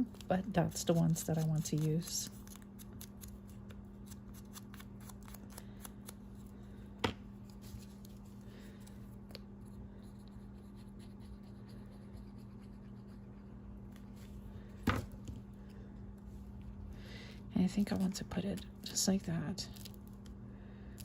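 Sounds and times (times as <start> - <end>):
low hum: 5.3 - 21.0.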